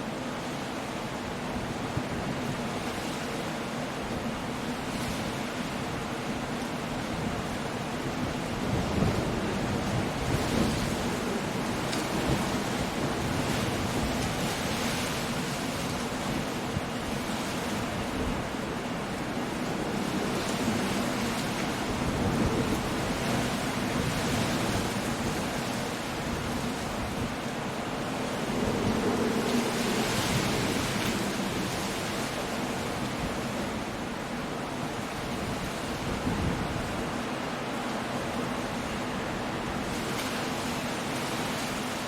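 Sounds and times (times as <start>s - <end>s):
rain: 0.0s - 42.0s
wind: 0.0s - 42.0s
sea surf breaking: 0.1s - 42.0s.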